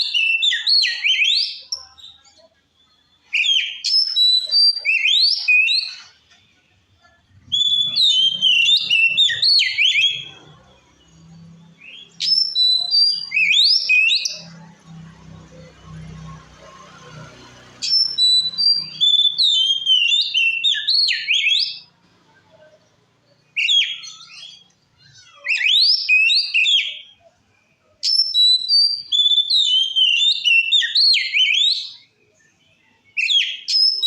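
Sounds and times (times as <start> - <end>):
bird singing whistled notes: 2.8 - 6.1, 7.4 - 14.6, 17.8 - 21.9, 28.0 - 34.0.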